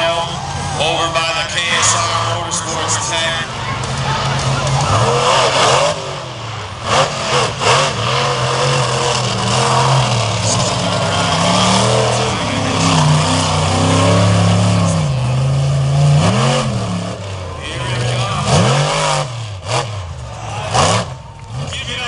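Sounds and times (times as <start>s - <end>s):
truck engine revving hard: 0.0s - 22.0s.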